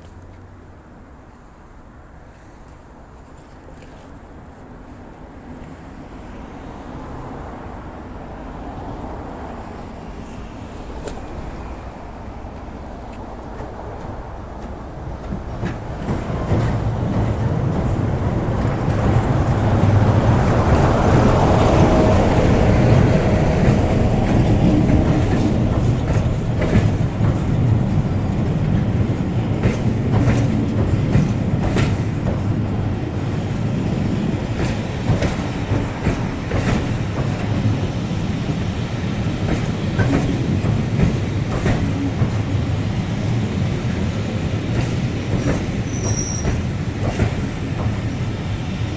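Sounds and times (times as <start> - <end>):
train wheels clacking: 10.0 - 48.9.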